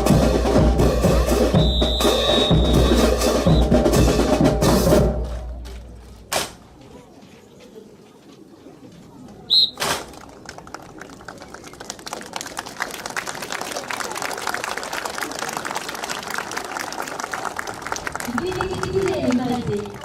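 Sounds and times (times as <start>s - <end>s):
bass and snare drum cadence: 0.0s - 6.8s, 9.5s - 10.2s.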